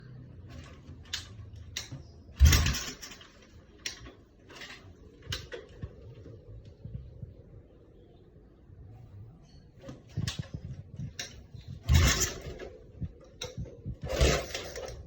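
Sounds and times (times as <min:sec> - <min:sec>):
motorcycle engine running: 0:01.8 - 0:03.5, 0:10.2 - 0:15.0.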